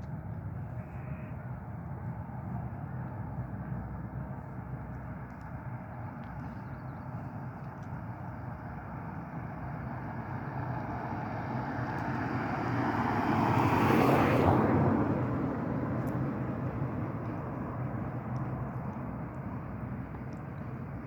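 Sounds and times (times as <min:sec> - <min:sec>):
vehicle passing by: 0:11.1 - 0:17.2.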